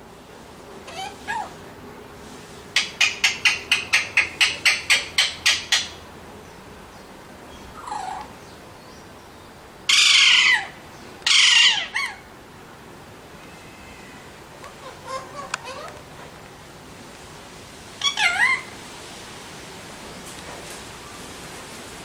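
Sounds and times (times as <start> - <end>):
parakeet calls: 0.9 - 1.5, 2.8 - 6.0, 7.5 - 8.3, 9.9 - 12.2, 13.9 - 16.0, 18.0 - 18.8
parakeet harsh screeches: 0.9 - 1.5, 11.3 - 12.2, 18.0 - 18.7.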